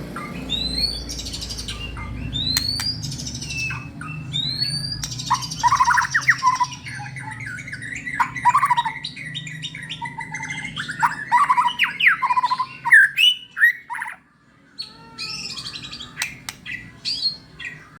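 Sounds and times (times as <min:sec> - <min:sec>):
songbird whistling and chattering: 0:00.2 - 0:14.2.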